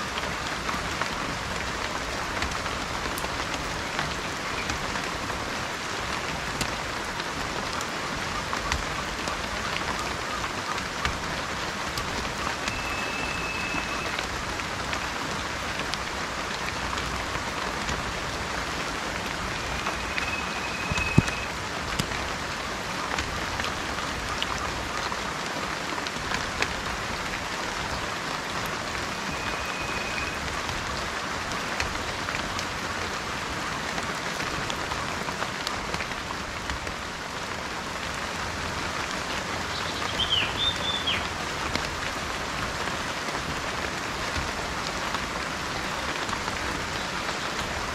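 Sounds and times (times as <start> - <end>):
steady rain falling: 0.0 - 47.9
bird call: 12.4 - 14.3, 19.5 - 21.6, 29.1 - 30.4, 39.7 - 41.3
whistled bird notes: 12.6 - 14.2, 19.6 - 21.5, 29.2 - 30.4, 39.7 - 41.2.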